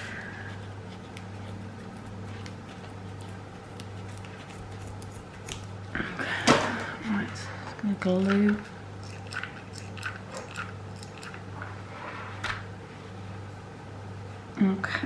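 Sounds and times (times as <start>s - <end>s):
steady low hum: 0.0s - 15.0s
scissors snip: 3.7s - 5.7s.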